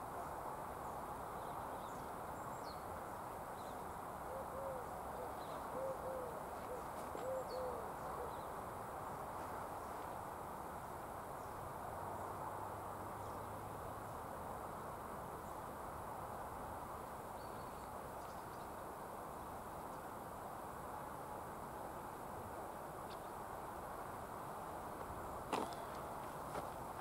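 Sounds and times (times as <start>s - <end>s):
background hiss: 0.0s - 27.0s
bird cooing: 4.3s - 8.5s.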